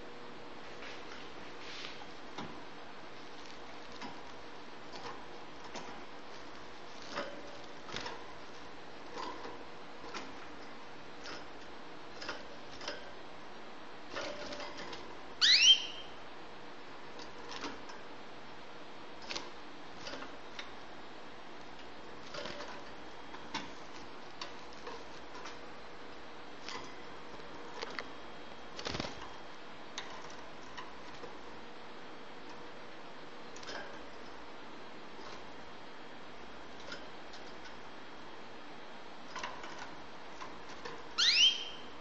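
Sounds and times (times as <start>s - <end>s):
bird moving in wire cage: 3.3s - 13.2s, 22.1s - 25.8s
bird chirps: 15.4s - 16.2s, 41.2s - 41.9s.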